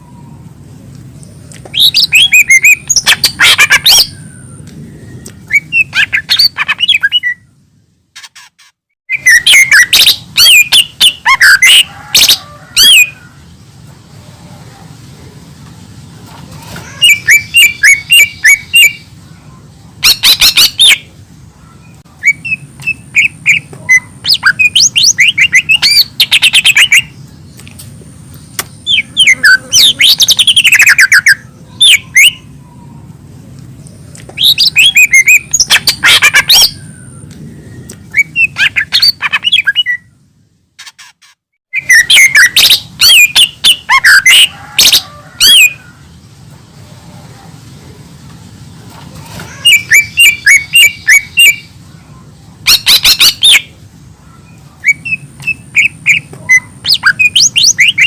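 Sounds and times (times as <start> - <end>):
bird singing chirps and whistles: 1.7 - 7.5, 9.1 - 13.2, 17.0 - 19.1, 20.0 - 21.1, 22.2 - 27.2, 28.6 - 32.5, 34.4 - 40.2, 41.7 - 45.8, 49.6 - 51.7, 52.7 - 53.7, 54.4 - 58.0.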